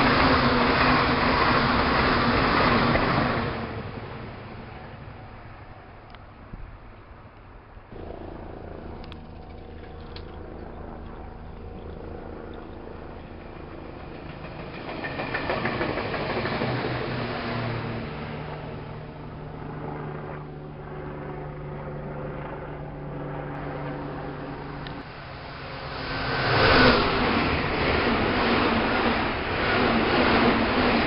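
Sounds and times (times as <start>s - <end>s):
electric train passing: 0.0s - 20.1s, 23.4s - 31.0s.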